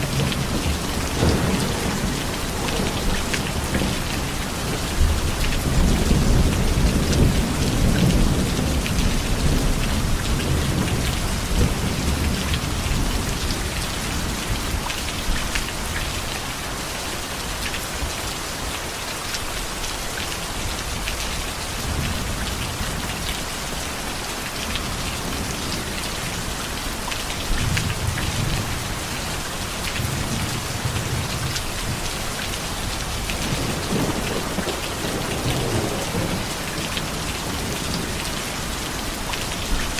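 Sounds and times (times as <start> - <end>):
rolling thunder: 0.0 - 14.9, 32.9 - 38.4
heavy rain falling: 0.0 - 39.9.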